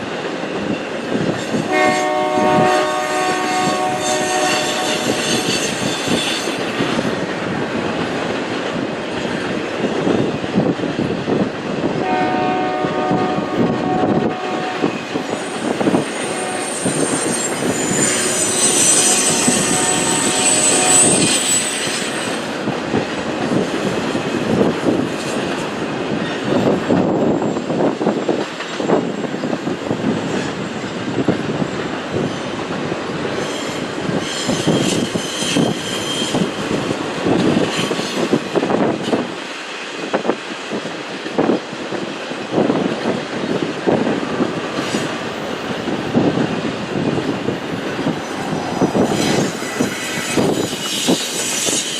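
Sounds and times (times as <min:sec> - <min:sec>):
freight train rumble: 0:00.0 - 0:51.9
steel wheel squeal: 0:03.4 - 0:07.2, 0:14.8 - 0:22.5, 0:33.3 - 0:37.0, 0:37.6 - 0:38.4, 0:47.7 - 0:51.9.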